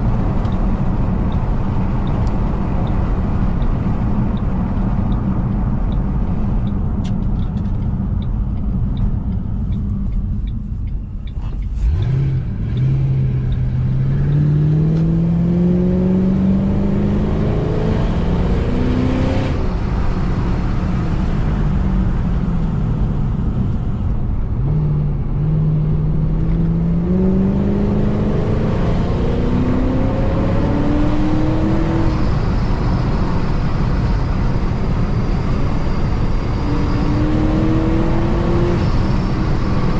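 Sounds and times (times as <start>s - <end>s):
car engine revving through gears: 11.2s - 20.0s, 24.6s - 33.2s, 36.0s - 39.9s.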